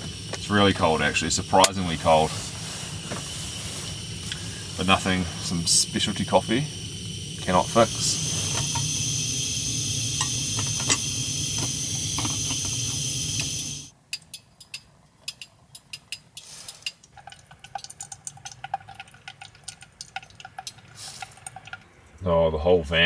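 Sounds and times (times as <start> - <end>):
coffee pouring and stirring: 0.0 - 13.9, 15.3 - 22.1
camp stove burner hissing: 0.0 - 14.0, 20.9 - 21.7.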